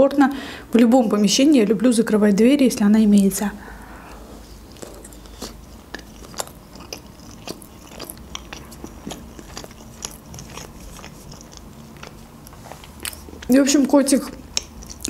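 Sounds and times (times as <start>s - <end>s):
chewing with mouth clicks: 4.0s - 15.0s.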